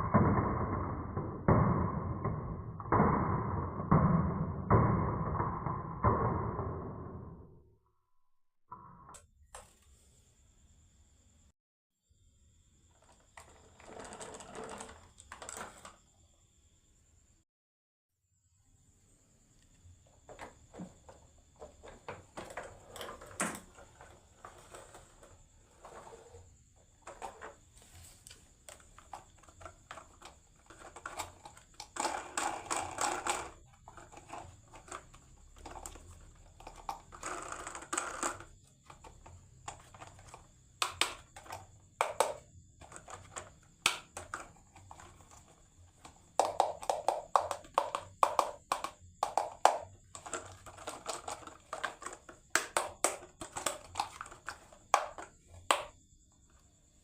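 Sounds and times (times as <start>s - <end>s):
marbles knocking on wood: 0.0s - 7.5s, 28.7s - 56.0s
marbles rattling along wooden track: 13.0s - 16.0s, 28.7s - 55.9s.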